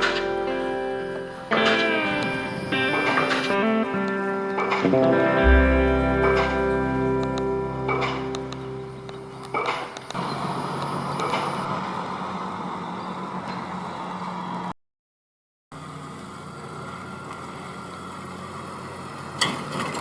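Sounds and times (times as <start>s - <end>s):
engine humming: 0.0s - 10.2s.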